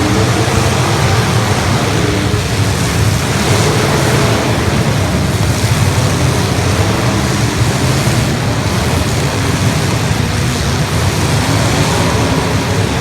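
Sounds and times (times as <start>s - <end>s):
many car engines rumbling: 0.0s - 13.0s.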